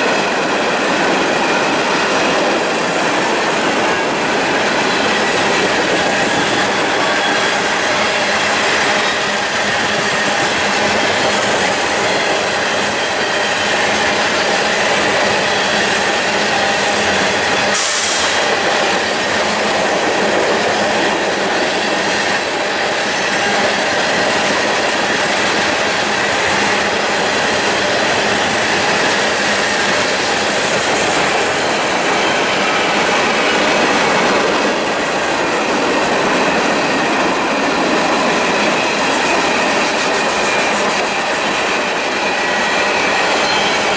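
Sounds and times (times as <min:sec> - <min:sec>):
clickety-clack over rail joints: 0:00.0 - 0:43.9
freight train wheels rumbling: 0:00.0 - 0:43.9
brief hiss: 0:17.8 - 0:18.6.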